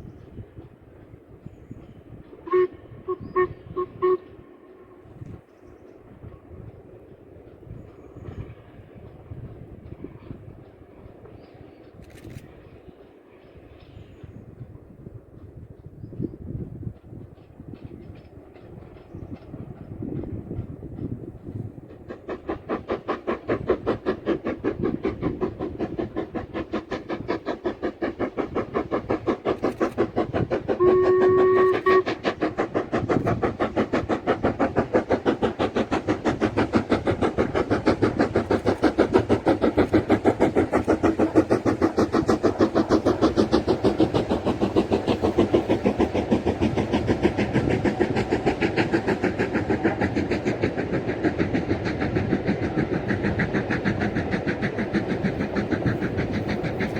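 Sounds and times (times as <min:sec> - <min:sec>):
steam locomotive chuffing: 0:00.0 - 0:56.9
steam whistle blast: 0:02.4 - 0:04.3, 0:30.8 - 0:32.2.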